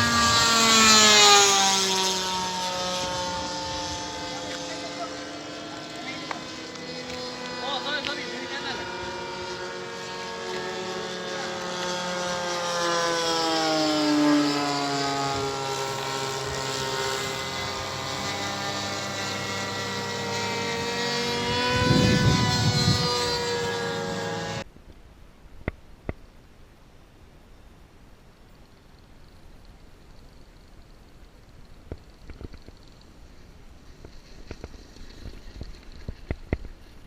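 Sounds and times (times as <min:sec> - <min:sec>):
model plane engine in flight: 0:00.0 - 0:24.7, 0:28.3 - 0:37.0
wind rumble on microphone: 0:19.3 - 0:24.6.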